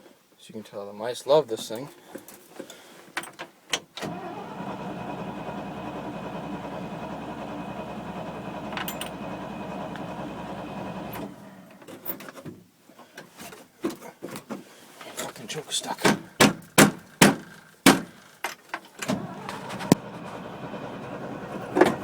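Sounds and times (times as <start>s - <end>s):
engine turning over and running: 4.1s - 11.9s, 19.0s - 22.0s.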